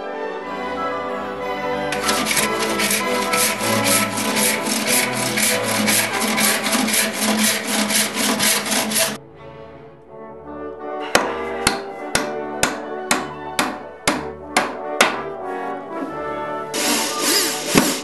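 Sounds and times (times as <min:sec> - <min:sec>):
background music: 0:00.0 - 0:18.0
rubbing strokes on wood: 0:02.0 - 0:09.2.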